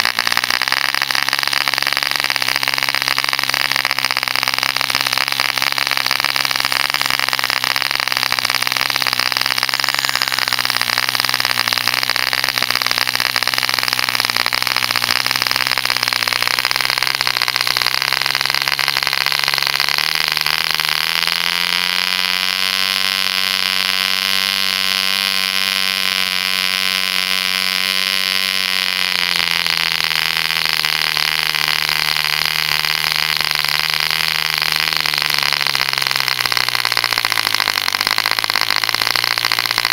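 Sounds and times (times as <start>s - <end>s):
constant hiss: 0.0s - 17.0s
model diesel engine buzzing: 0.0s - 39.9s.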